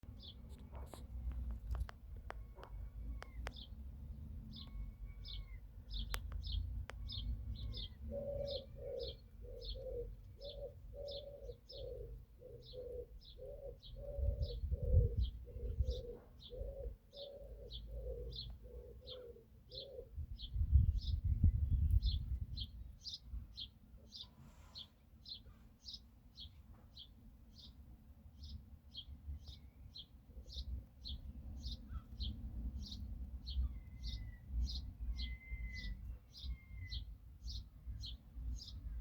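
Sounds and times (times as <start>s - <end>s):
lower repeated bird call: 7.0s - 20.2s, 31.6s - 38.7s.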